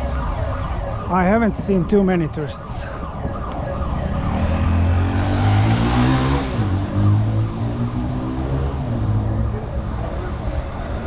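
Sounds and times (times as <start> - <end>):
vehicle passing with tyre noise: 4.0 - 9.4.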